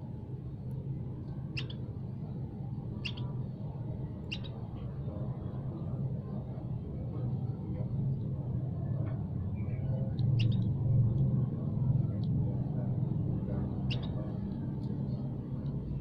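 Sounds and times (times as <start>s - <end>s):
low steady rumble: 0.0s - 16.0s
songbird chirping: 1.6s - 1.9s, 3.0s - 3.3s, 4.3s - 4.6s, 9.6s - 10.7s, 13.7s - 14.4s.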